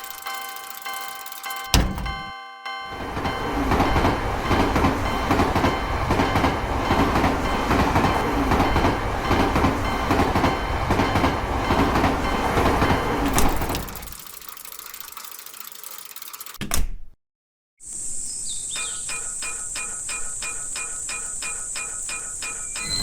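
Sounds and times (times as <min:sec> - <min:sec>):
train wheels clattering over rails: 0:03.0 - 0:14.2.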